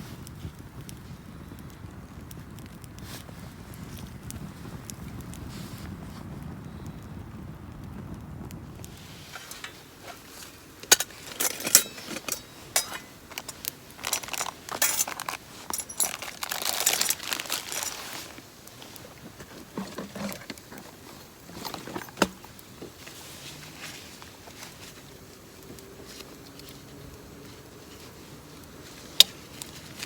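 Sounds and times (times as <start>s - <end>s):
crinkling and rustling: 0.0s - 6.9s, 8.4s - 30.0s
metallic clinks and knocks: 9.3s - 18.0s.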